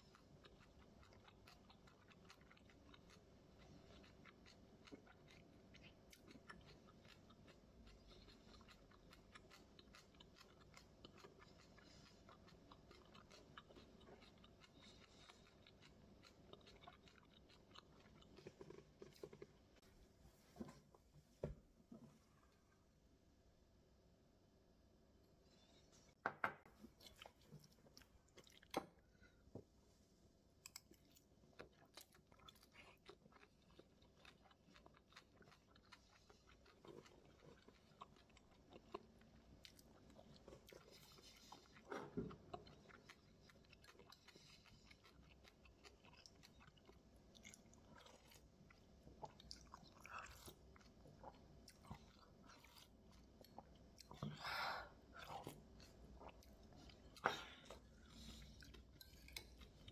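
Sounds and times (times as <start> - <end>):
crunchy chewing: 0.0 - 19.8, 30.6 - 54.3.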